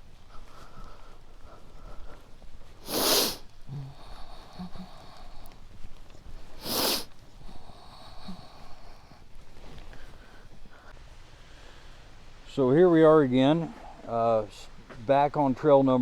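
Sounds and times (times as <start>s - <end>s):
loud blasts of breath: 2.8s - 4.8s, 6.6s - 7.1s.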